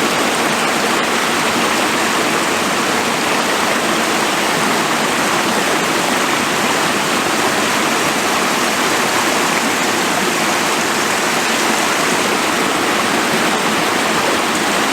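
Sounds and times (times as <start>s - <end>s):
stream rushing water: 0.0s - 14.9s.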